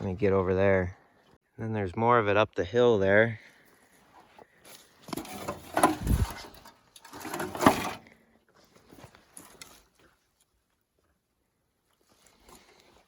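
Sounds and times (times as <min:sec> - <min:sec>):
footsteps through undergrowth: 0:07.8 - 0:13.0.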